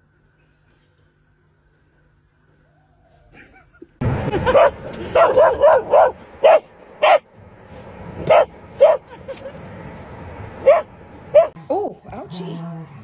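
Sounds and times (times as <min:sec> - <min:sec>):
dog barking: 0:04.5 - 0:07.2, 0:08.2 - 0:09.0, 0:10.6 - 0:11.6.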